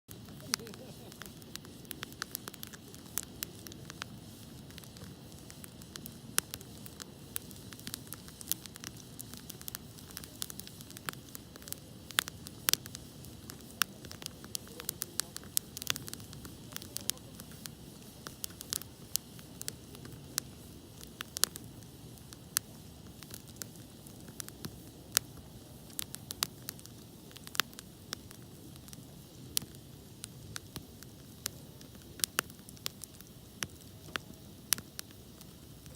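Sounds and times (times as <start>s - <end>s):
low rush of burning: 0.1s - 35.9s
wood fire crackling and popping: 0.1s - 35.9s.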